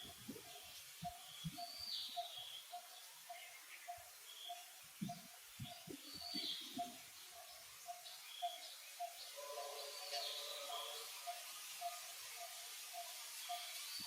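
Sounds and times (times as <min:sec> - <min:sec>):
bird calling: 0:01.0 - 0:13.8.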